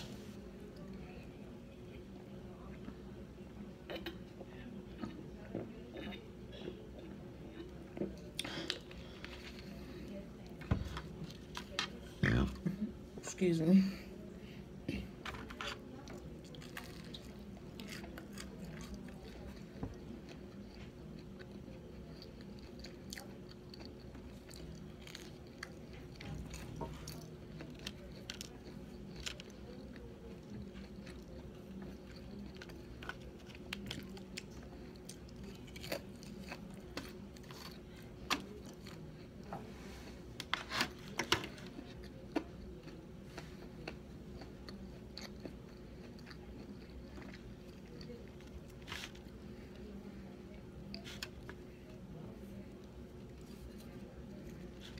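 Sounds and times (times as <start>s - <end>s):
person chewing: 15.6s - 39.5s, 40.4s - 49.9s.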